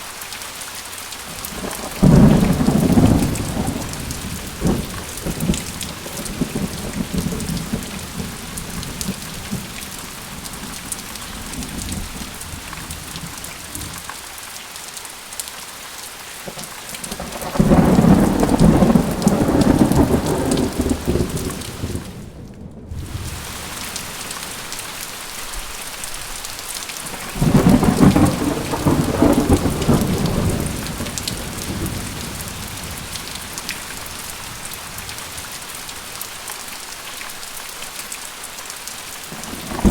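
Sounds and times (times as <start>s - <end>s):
steady rain falling: 0.0s - 39.9s
thunder rumbling: 1.3s - 14.0s, 16.5s - 24.9s, 27.0s - 35.9s, 39.3s - 39.9s.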